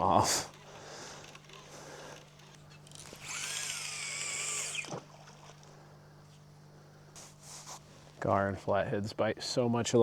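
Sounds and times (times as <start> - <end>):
fishing reel cranked fast: 0.6 - 5.6.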